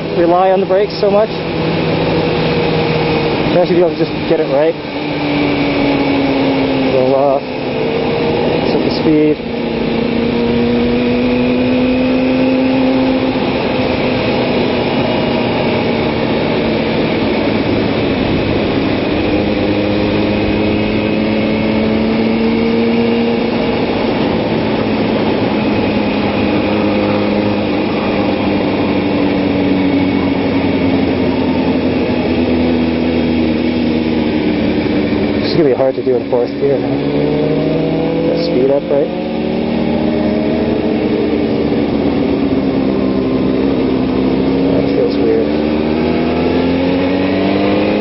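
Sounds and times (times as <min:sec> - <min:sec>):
motorcycle engine running: 0:00.0 - 0:48.0
wind noise: 0:00.0 - 0:48.0.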